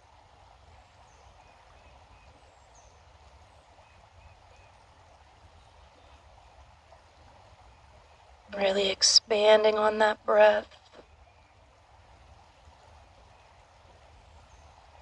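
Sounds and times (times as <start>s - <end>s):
flowing creek: 0.0s - 15.0s.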